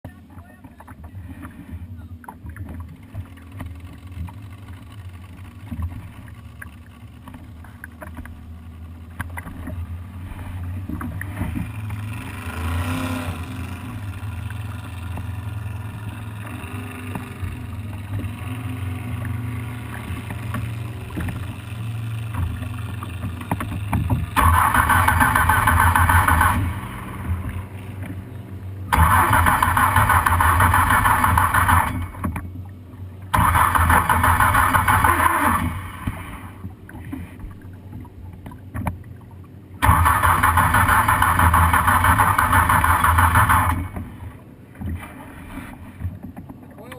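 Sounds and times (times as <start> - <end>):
engine starter cranking: 24.4 - 26.8, 28.9 - 32.2, 33.3 - 36.0, 39.8 - 44.0.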